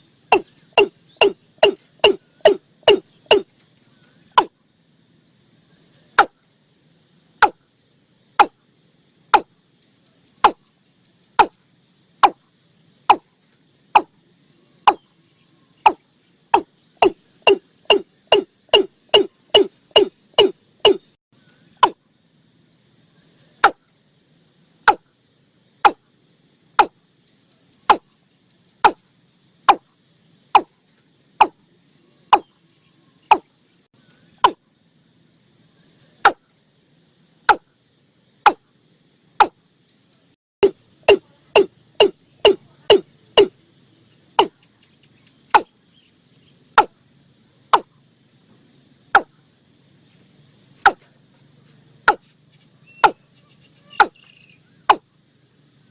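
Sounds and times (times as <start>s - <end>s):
insects humming: 0.0s - 55.9s
watercock calling: 0.3s - 3.4s, 16.6s - 21.0s.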